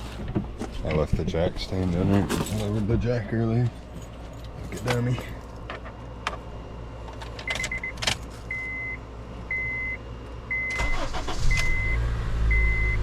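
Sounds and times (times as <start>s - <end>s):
dashboard warning chime beeping: 7.4s - 13.0s
car engine cranking and idling: 10.6s - 13.0s.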